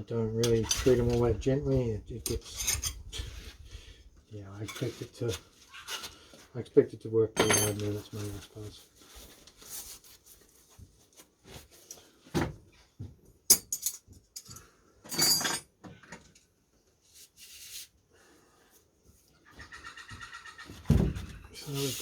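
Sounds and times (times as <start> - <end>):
tools knocking and clattering: 2.2 - 3.0, 7.4 - 8.0, 13.5 - 16.4.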